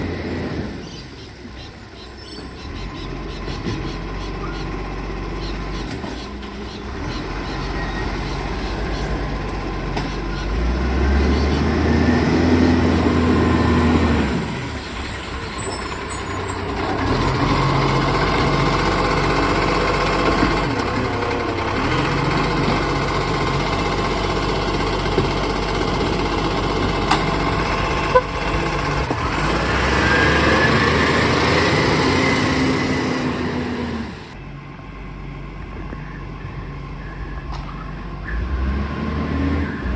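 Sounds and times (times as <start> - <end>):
diesel engine revving: 0.0 - 39.9
high squeal: 14.8 - 18.6.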